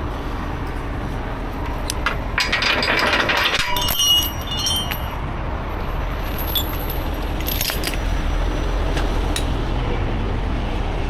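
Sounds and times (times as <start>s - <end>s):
truck engine rumbling: 0.0s - 11.0s
metallic clinks and jingles: 2.0s - 5.2s, 6.2s - 8.0s.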